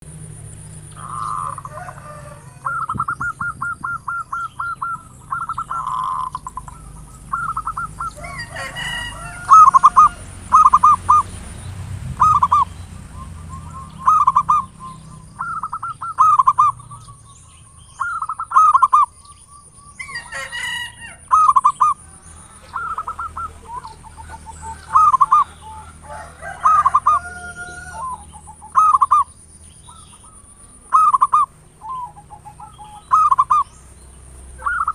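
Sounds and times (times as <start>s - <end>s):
birds chirping: 0.0s - 34.9s
dove cooing: 0.7s - 19.2s, 20.0s - 33.9s, 34.5s - 34.9s.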